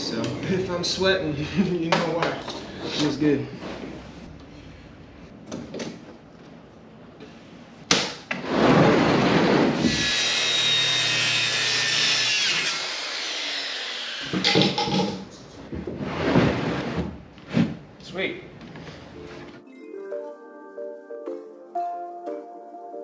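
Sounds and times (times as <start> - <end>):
power tool cutting wood: 9.7 - 14.7.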